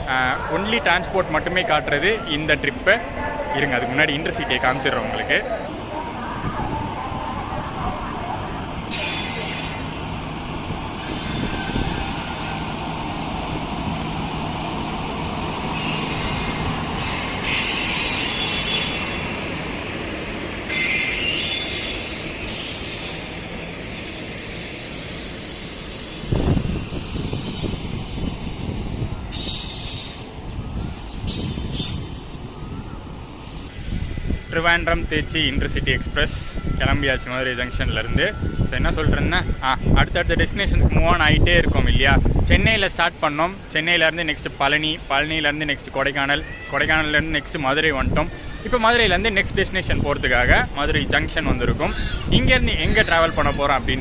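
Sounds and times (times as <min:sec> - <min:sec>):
train rolling rumble: 0:02.6 - 0:54.0
train wheel squeal: 0:08.9 - 0:10.2, 0:11.0 - 0:12.8, 0:15.7 - 0:19.5, 0:20.7 - 0:40.0.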